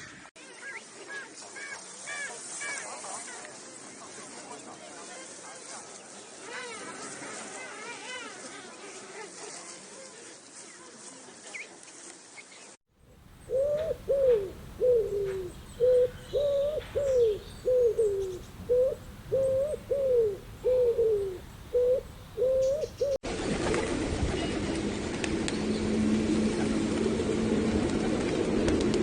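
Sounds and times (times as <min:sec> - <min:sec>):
bird cooing notes: 0:13.1 - 0:23.2.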